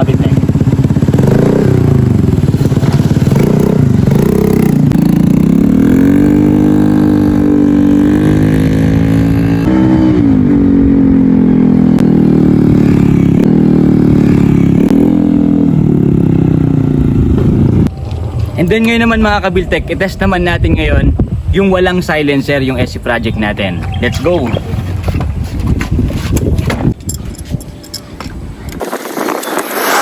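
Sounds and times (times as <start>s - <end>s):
motorcycle accelerating: 0.0s - 20.0s.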